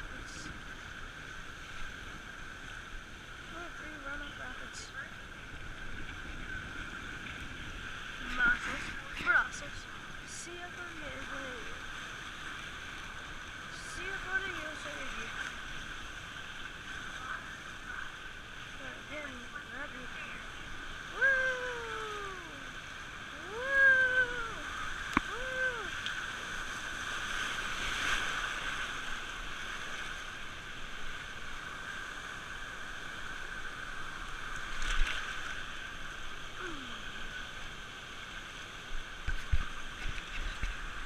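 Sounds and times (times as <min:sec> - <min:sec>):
water rushing down tube slide: 0:12.8 - 0:35.8.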